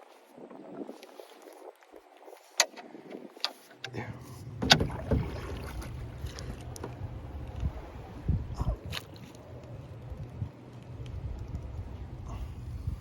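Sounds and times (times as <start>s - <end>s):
boat engine low rumble: 0.0s - 13.0s
sharp knocks on boat: 4.5s - 7.1s.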